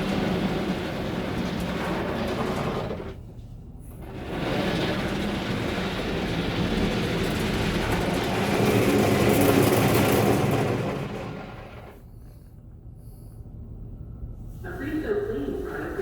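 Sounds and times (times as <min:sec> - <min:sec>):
car wash brushes and spray: 0:00.0 - 0:12.1.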